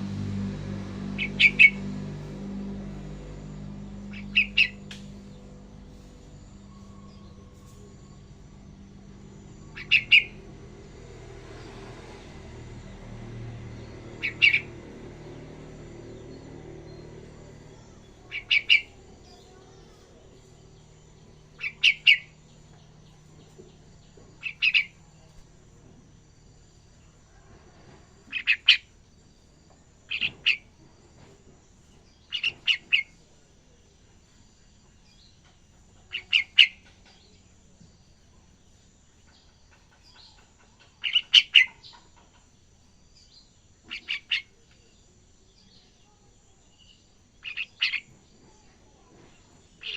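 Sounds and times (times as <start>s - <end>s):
young bird calling: 1.1s - 1.9s, 4.0s - 5.2s, 9.6s - 10.6s, 14.2s - 14.8s, 16.9s - 20.0s, 21.4s - 22.4s, 24.4s - 25.1s, 36.0s - 36.8s, 43.9s - 44.6s, 47.4s - 48.1s.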